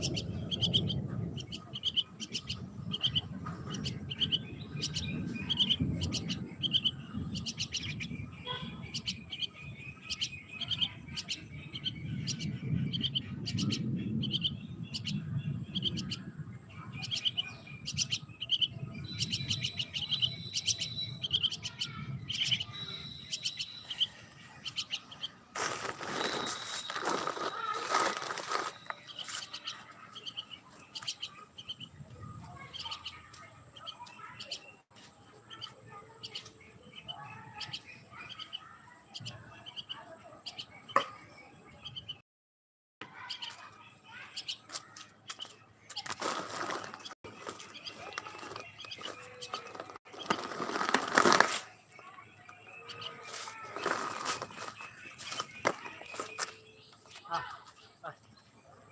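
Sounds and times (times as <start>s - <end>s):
small birds chirping: 0.0s - 42.2s, 43.0s - 58.9s
loud rustling: 25.6s - 29.5s, 46.1s - 51.7s, 53.2s - 56.4s.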